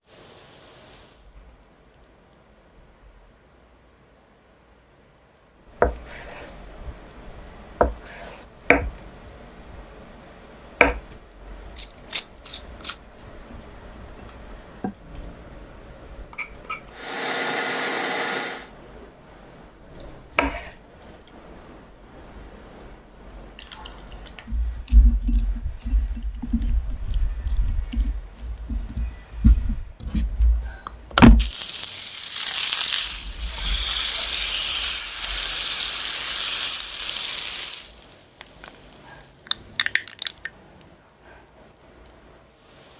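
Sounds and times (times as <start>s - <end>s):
steady hiss: 0.0s - 2.8s, 31.4s - 42.9s.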